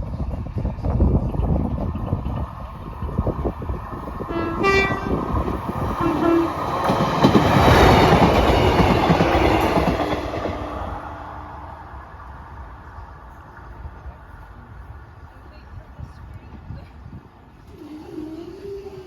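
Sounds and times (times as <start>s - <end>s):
train rumble and wheel clatter: 0.0s - 19.0s
train horn: 4.3s - 6.7s.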